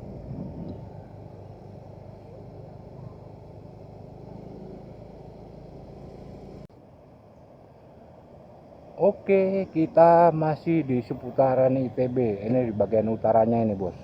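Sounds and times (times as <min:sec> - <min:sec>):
wind rumble on microphone: 0:00.0 - 0:01.5
motorcycle engine hum: 0:00.0 - 0:14.0.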